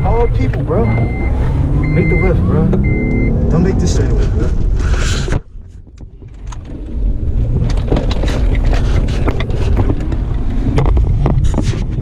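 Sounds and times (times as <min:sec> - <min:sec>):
engine and road noise: 0:00.0 - 0:12.0
wind buffeting microphone: 0:04.4 - 0:12.0.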